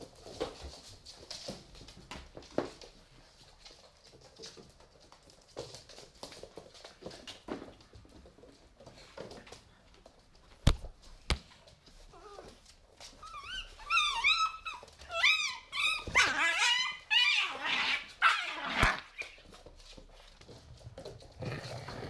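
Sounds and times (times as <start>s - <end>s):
puppies whining and yelping: 12.1s - 19.4s.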